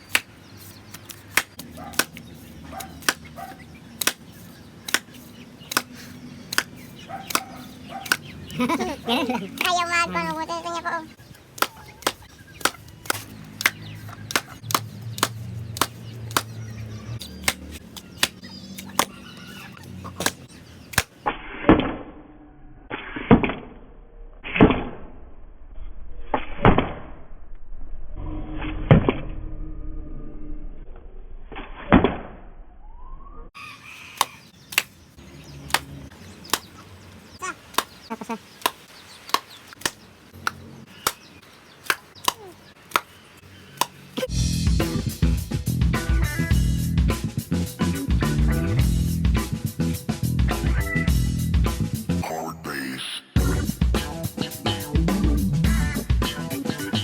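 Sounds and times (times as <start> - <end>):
sharp irregular clicks and taps: 11.6 - 16.5.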